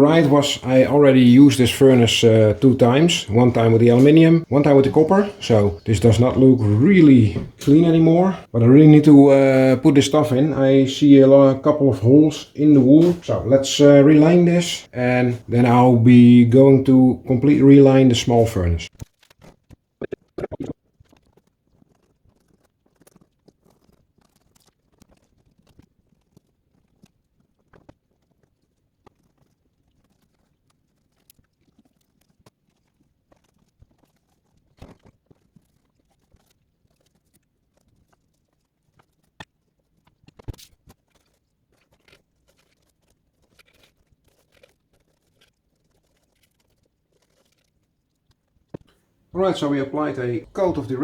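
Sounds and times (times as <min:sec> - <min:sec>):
crunching and dabbing: 0:00.0 - 0:20.7, 0:33.5 - 0:51.0.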